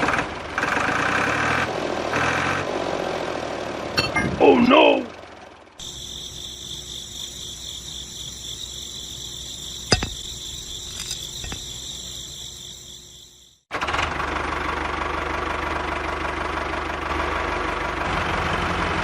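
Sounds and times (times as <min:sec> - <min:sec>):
crickets chirping: 0:05.8 - 0:13.7.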